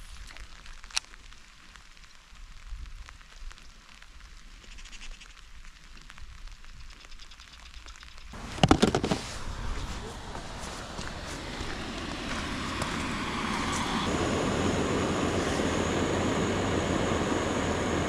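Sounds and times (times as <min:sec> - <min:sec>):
rain falling: 0:00.0 - 0:04.6, 0:08.4 - 0:14.1
rustling and knocking: 0:08.4 - 0:10.8.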